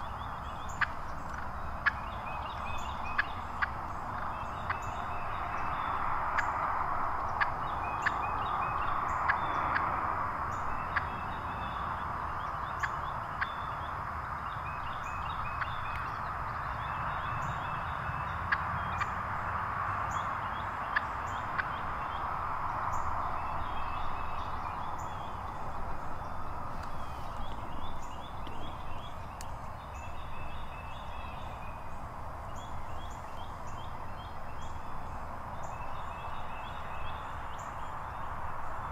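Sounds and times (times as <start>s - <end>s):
wild turkeys calling: 0.0s - 9.9s, 20.2s - 22.3s
songbirds chirping: 0.0s - 38.9s.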